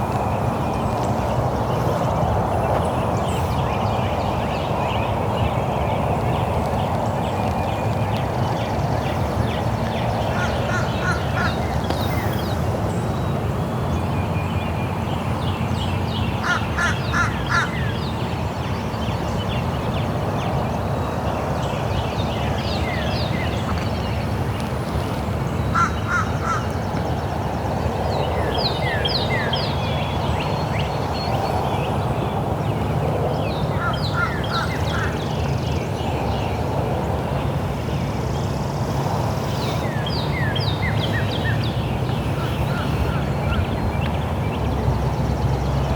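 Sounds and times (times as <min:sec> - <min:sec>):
birds chirping: 0:00.0 - 0:15.2, 0:37.3 - 0:45.9.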